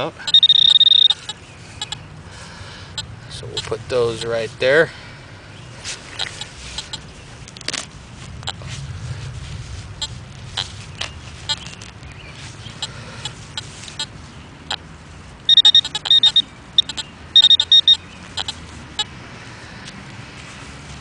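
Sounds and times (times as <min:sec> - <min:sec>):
metal detector probe beeping: 0:00.0 - 0:02.0, 0:06.2 - 0:07.0, 0:10.0 - 0:11.9, 0:15.5 - 0:19.1
low steady rumble: 0:00.0 - 0:16.2
digging clicks and scrapes in soil: 0:05.8 - 0:14.8.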